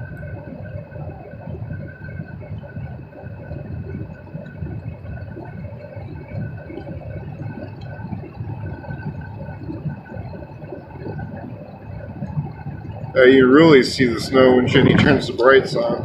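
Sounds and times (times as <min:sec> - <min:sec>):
faint steady whine: 0:00.0 - 0:16.0.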